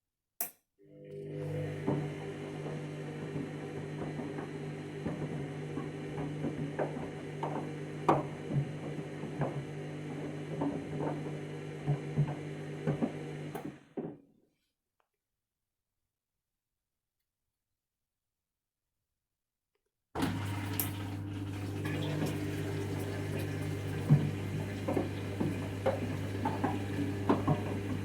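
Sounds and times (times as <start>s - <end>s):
washing machine motor hum: 0.8s - 14.0s, 20.2s - 28.0s.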